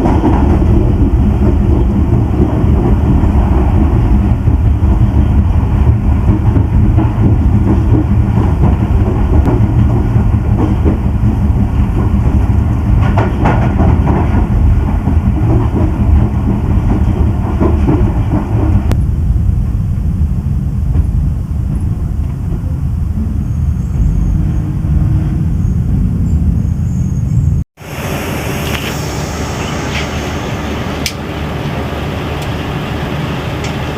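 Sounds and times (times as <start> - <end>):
wheels clattering over rails: 0.0 - 19.0
train rumbling: 0.0 - 33.9.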